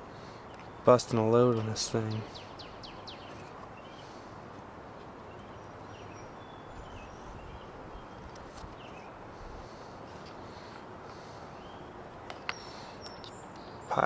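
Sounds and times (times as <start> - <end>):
quiet background hiss: 0.0 - 14.0
faint bird chirps: 5.3 - 9.2, 10.6 - 14.0.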